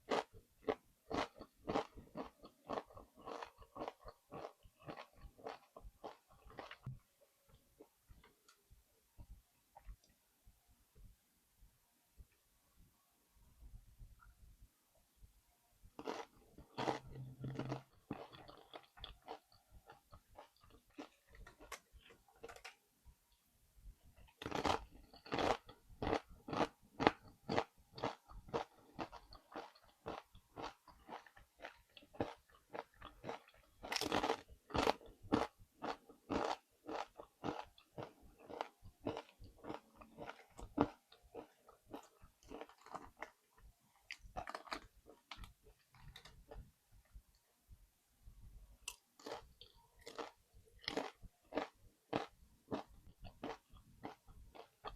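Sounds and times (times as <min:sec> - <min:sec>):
crunching tortilla chips: 0:44.1 - 0:46.6, 0:49.2 - 0:54.9.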